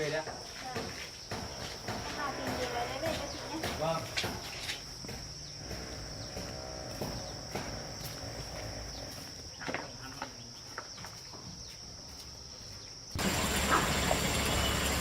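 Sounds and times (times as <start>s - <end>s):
rushing water: 13.2s - 15.0s.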